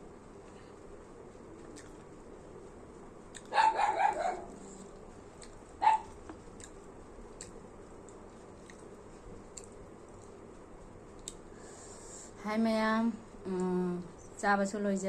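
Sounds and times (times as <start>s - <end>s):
dog barking: 3.5s - 4.6s, 5.8s - 6.2s.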